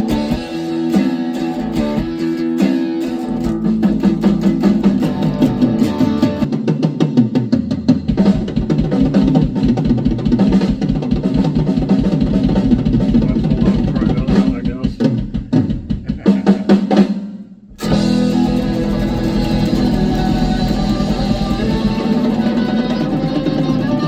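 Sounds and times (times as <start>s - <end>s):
heavy rock music: 0.0s - 6.5s, 11.3s - 14.8s, 17.8s - 24.0s
fast driving drum beat: 0.0s - 24.0s.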